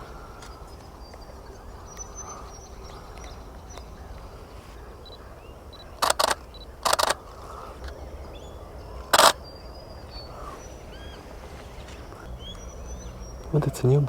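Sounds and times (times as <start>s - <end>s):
camera shutter rapid clicks: 6.0s - 7.2s, 9.2s - 9.4s.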